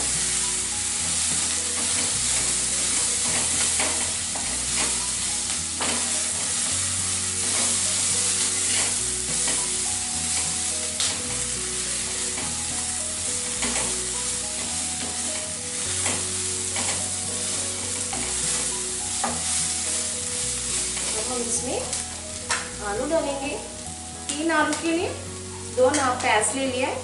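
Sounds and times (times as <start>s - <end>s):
onions sizzling in oil: 0.0s - 27.0s
spatula scraping pan: 1.2s - 12.8s.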